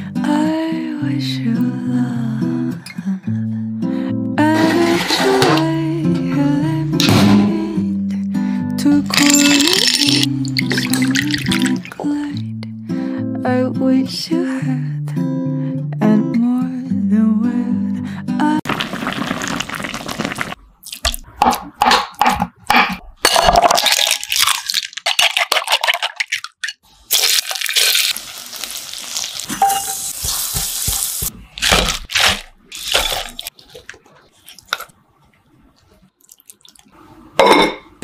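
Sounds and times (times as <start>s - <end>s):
liquid splashing into pot: 9.2s - 12.1s
tofu sizzling in hot oil: 27.1s - 31.3s.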